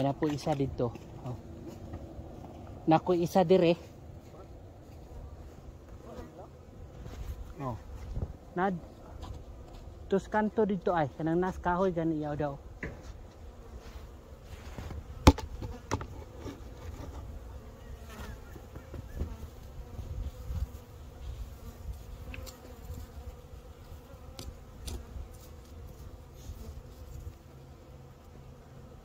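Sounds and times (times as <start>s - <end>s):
bees buzzing: 0.0s - 29.0s
knocks on beehive: 15.2s - 16.3s.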